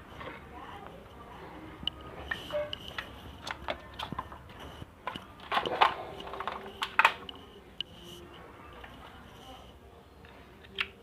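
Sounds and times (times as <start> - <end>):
small hard parts clicking: 1.8 - 8.0.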